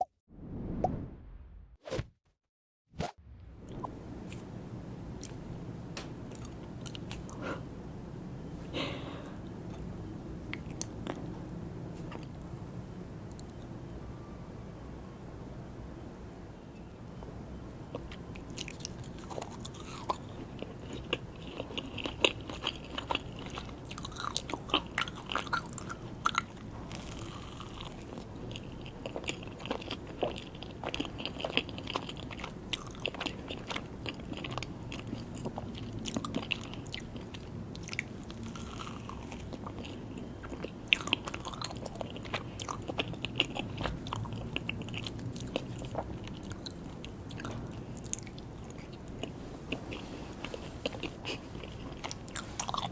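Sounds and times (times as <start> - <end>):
person chewing cake: 17.9 - 52.9.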